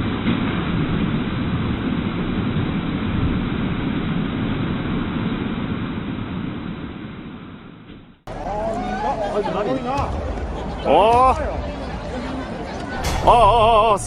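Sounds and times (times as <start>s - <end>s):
rushing floodwater: 8.3s - 14.0s.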